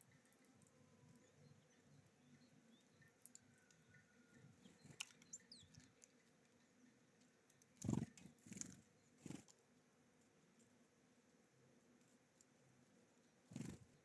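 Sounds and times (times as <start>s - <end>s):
small songbirds chirping: 0.0s - 9.8s, 11.6s - 14.0s.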